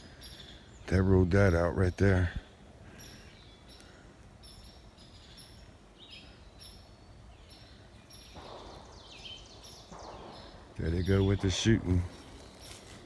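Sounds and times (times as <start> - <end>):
small birds chirping: 0.0 - 13.0
brief rustle: 12.0 - 13.0.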